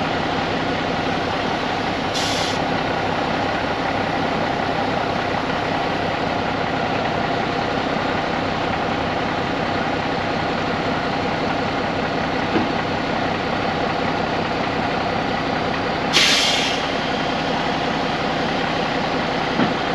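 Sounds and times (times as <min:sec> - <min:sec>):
diesel truck engine idling: 0:00.0 - 0:19.9
air brake hiss: 0:02.1 - 0:02.6, 0:16.1 - 0:17.1.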